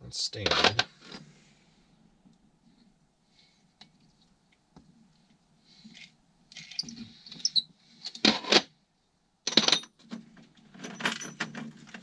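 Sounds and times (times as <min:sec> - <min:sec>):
metal bolts clinking and rattling: 0:05.9 - 0:08.6, 0:09.5 - 0:12.0.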